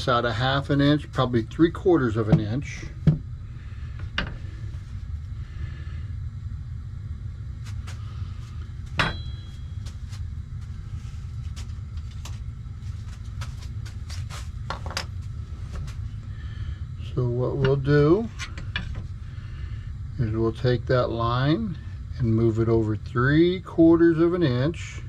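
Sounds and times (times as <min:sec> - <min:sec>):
water heater grumbling: 0:00.0 - 0:05.6.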